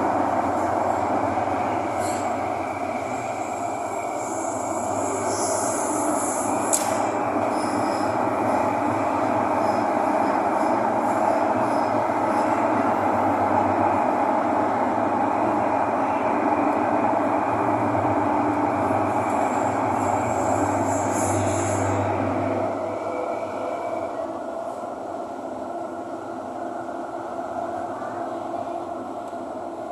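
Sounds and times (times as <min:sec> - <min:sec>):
rumble of train wheels on rail: 0:00.0 - 0:29.9
high wheel squeal: 0:07.4 - 0:08.2.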